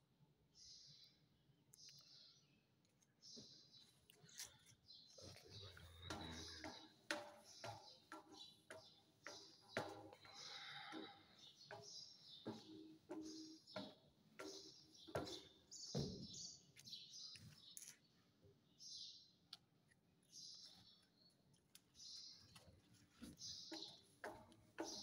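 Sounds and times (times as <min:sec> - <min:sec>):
faint birds chirping: 0:00.0 - 0:25.0
taps and knocks: 0:06.0 - 0:16.3, 0:23.7 - 0:25.0.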